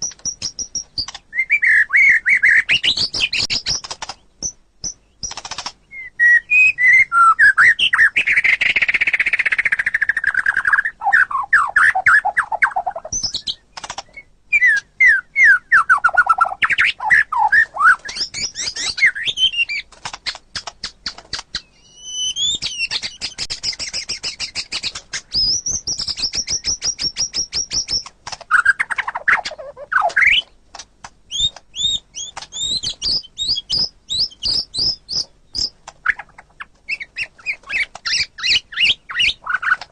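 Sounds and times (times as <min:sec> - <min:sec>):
bird rapid dry chattering: 0:00.0 - 0:05.9, 0:08.0 - 0:14.9, 0:15.9 - 0:39.9
songbird whistling: 0:00.0 - 0:19.9, 0:20.6 - 0:30.5, 0:31.3 - 0:39.8.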